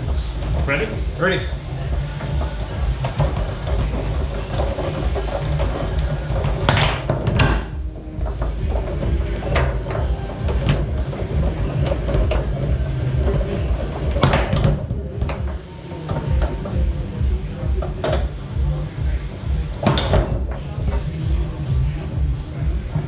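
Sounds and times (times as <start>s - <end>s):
background music: 0.0s - 23.0s
foosball ball clacks: 2.1s - 16.8s.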